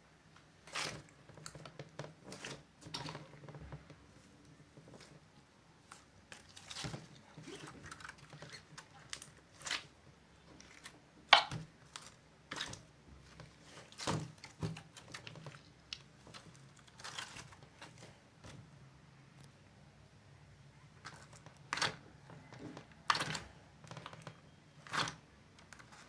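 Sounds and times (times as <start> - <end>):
slime squishing with wet clicks: 5.8 - 12.9, 21.0 - 26.0.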